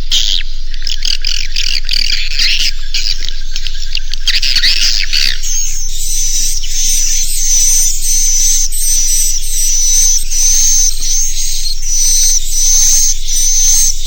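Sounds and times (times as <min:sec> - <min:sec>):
steady low hum: 0:00.0 - 0:14.0
swiftlet chirping: 0:05.4 - 0:14.0.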